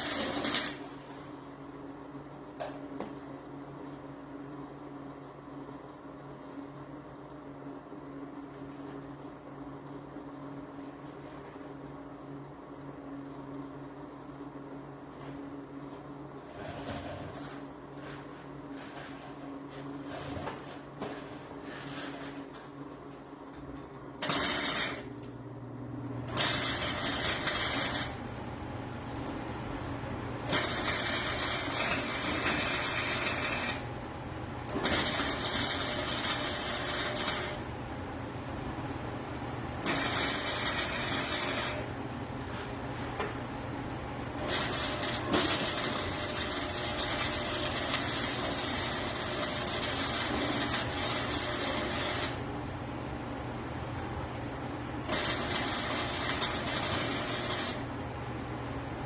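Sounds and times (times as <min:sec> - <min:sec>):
welding crackling hiss: 0:00.0 - 0:01.0, 0:24.2 - 0:25.1, 0:26.3 - 0:28.2, 0:30.5 - 0:33.9, 0:34.7 - 0:37.7, 0:39.8 - 0:41.9, 0:44.4 - 0:52.4, 0:55.1 - 0:57.9
welder humming: 0:00.0 - 0:01.2, 0:24.2 - 0:25.4, 0:26.2 - 0:28.7, 0:30.4 - 0:37.8, 0:39.8 - 0:42.0, 0:44.4 - 0:52.7, 0:55.0 - 0:58.0.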